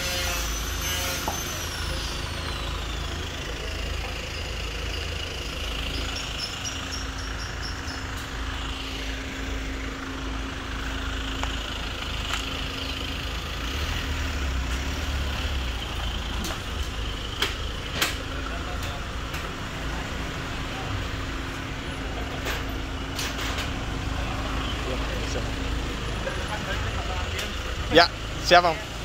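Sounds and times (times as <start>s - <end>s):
street noise: 0.0s - 29.0s
vehicle engines idling: 0.0s - 29.0s
high chirps: 5.6s - 8.5s.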